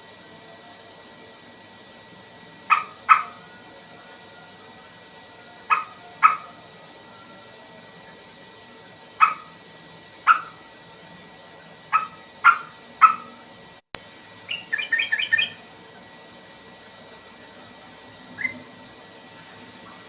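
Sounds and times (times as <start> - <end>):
bird calling: 2.7 - 3.6, 5.6 - 6.6, 9.2 - 9.6, 10.2 - 10.6, 11.9 - 13.4, 14.4 - 15.6, 18.3 - 18.7.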